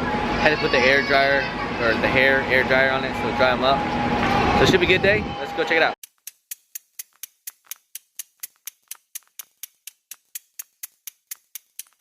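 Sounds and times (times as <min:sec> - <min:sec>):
clock ticking: 0:06.0 - 0:12.0.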